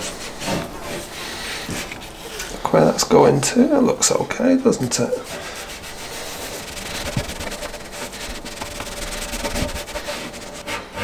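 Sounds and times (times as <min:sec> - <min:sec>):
scratchy rubbing on paper sheet: 0:04.6 - 0:11.0.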